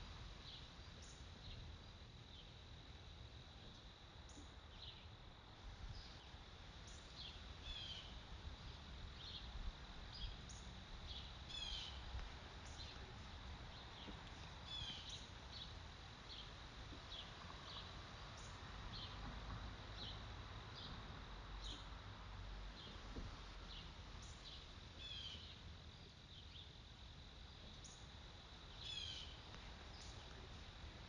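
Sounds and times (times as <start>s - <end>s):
small birds chirping: 5.9s - 19.2s, 21.6s - 22.0s, 22.7s - 25.6s, 27.8s - 30.5s
trilled bird calls: 11.5s - 12.0s.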